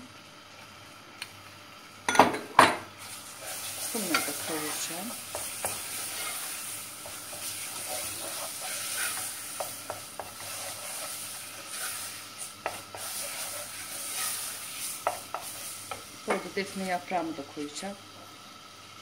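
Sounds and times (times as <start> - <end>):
tomato sizzling in a pot: 0.0 - 19.0
wooden spoon scraping a pot: 3.3 - 16.5.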